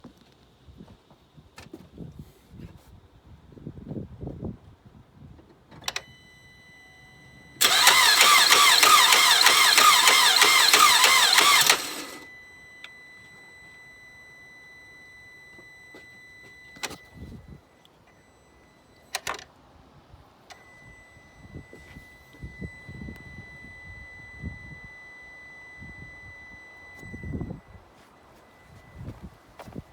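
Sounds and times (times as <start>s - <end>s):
engine cranking with rhythmic knock: 7.6s - 12.3s
sharp clicks: 7.6s - 12.3s.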